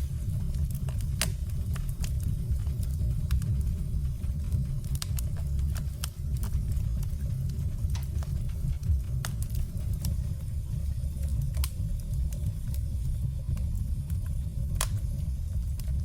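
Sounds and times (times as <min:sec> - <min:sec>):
fire rumbling: 0:00.0 - 0:16.0
firewood crackling and popping: 0:00.0 - 0:16.0.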